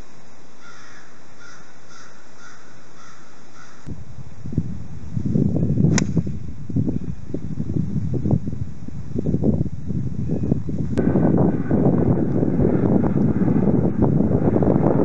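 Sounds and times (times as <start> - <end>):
bird calling: 0.6 - 3.9
wind buffeting microphone: 3.6 - 15.0
golf club striking ball: 5.9 - 6.4.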